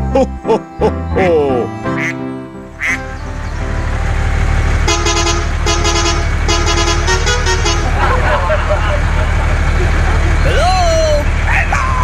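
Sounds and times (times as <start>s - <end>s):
vehicle engine rumbling: 0.0s - 12.0s
horn honking: 1.9s - 10.4s.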